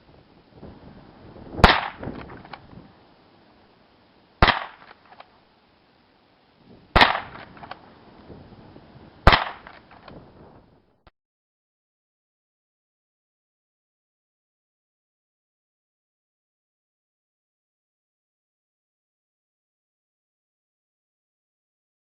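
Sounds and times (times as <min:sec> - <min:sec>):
rifle shots cracking: 0:01.6 - 0:02.6, 0:04.4 - 0:05.3, 0:07.0 - 0:07.8, 0:09.3 - 0:10.1.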